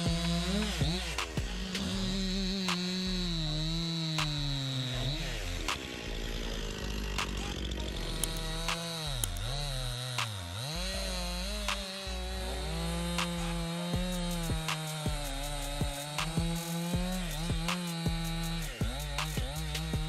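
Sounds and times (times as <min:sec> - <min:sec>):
chainsaw cutting wood: 0:00.0 - 0:20.0
sharp cracks: 0:00.2 - 0:01.9, 0:02.6 - 0:03.1, 0:04.0 - 0:04.8, 0:05.6 - 0:06.3, 0:06.9 - 0:10.7, 0:13.0 - 0:13.7, 0:14.7 - 0:16.8, 0:18.9 - 0:19.9.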